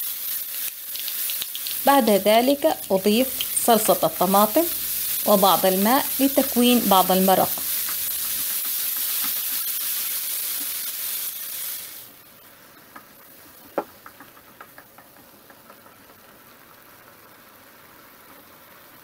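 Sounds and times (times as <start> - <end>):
vegetables sizzling in frying pan: 0.0 - 19.0
spatula tapping pan: 5.8 - 9.6, 12.9 - 16.3.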